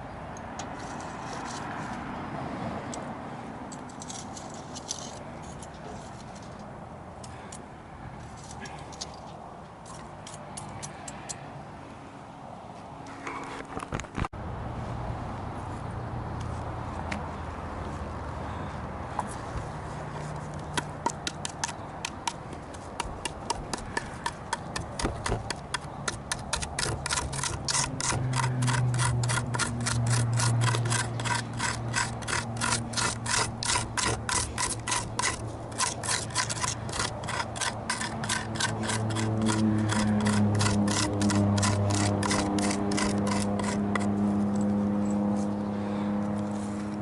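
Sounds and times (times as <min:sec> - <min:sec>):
hand tool scraping wood: 0:00.6 - 0:02.0, 0:19.2 - 0:44.7.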